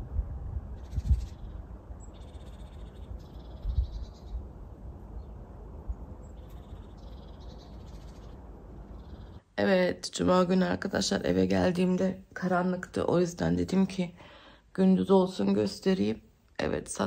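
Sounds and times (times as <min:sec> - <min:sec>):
low outdoor rumble: 0:00.0 - 0:17.0
small birds twittering: 0:00.7 - 0:09.5.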